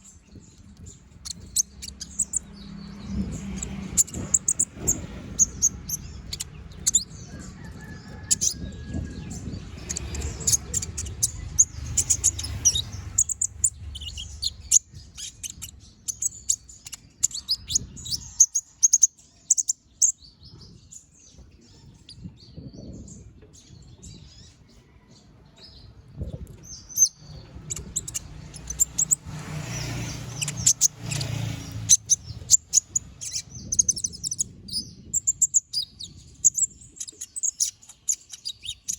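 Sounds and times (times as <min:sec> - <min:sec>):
sunbird singing high chirps: 0:00.0 - 0:24.6, 0:26.2 - 0:38.9
low rumble: 0:00.3 - 0:16.5.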